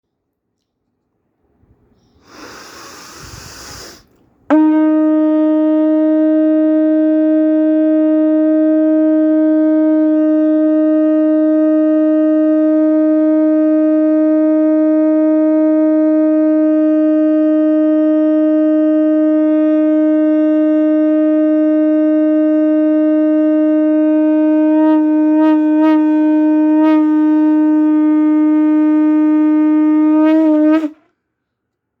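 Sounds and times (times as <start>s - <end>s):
hiss of air: 2.1s - 4.2s
conch shell blown: 3.3s - 31.3s.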